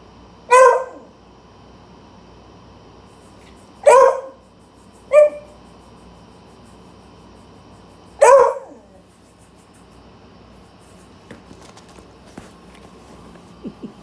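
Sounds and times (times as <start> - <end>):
dog barking: 0.5 - 1.1, 3.8 - 4.4, 5.1 - 5.6, 8.2 - 9.0.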